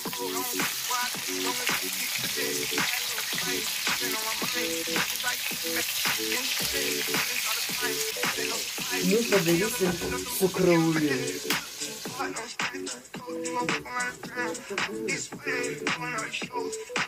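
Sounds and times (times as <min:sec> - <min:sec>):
food sizzling in a pan: 0:00.0 - 0:16.9.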